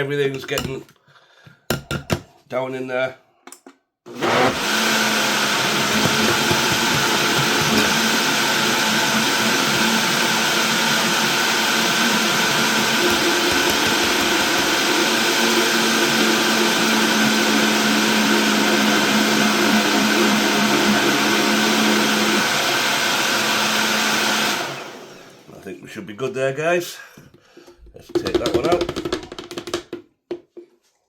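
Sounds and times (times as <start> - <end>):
blender running: 4.1 - 25.5.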